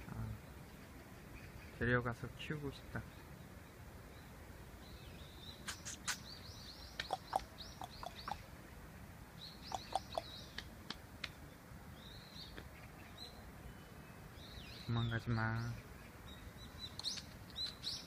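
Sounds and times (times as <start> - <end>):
small bird chirping: 3.1 - 8.4, 9.4 - 10.6, 12.0 - 18.0.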